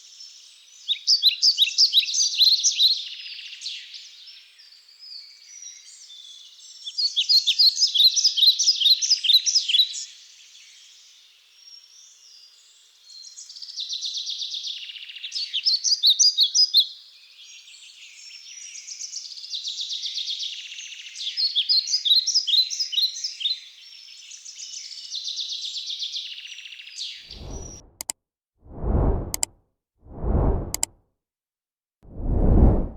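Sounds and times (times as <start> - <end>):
low rumble: 27.3 - 28.0, 28.7 - 29.5, 30.1 - 30.9, 32.1 - 32.9.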